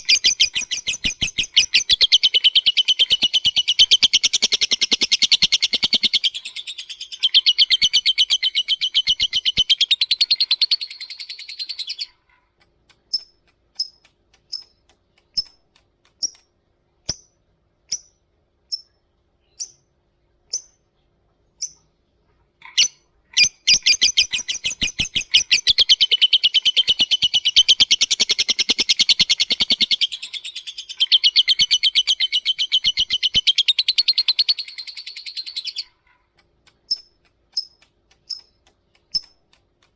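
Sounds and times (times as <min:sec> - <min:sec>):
lovebird chattering trill: 0:00.0 - 0:12.2, 0:22.7 - 0:36.0.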